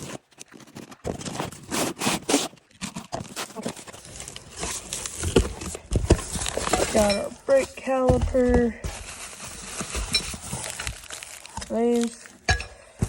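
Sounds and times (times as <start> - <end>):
packaging rustling: 0.0 - 12.5
parts knocking and scraping: 2.8 - 11.0.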